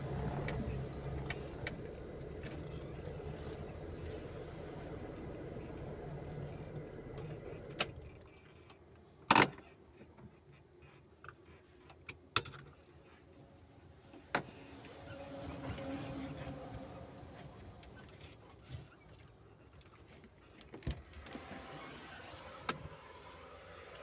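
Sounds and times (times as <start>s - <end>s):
road vehicle hum: 0.0s - 8.6s, 13.5s - 19.6s, 21.1s - 24.0s.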